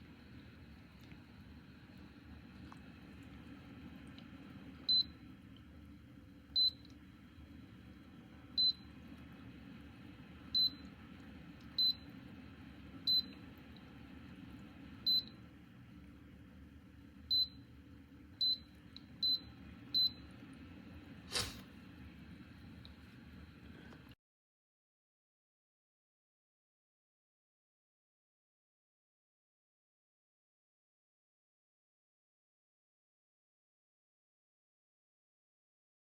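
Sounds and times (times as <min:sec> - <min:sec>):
faint low hum: 0:00.0 - 0:24.2.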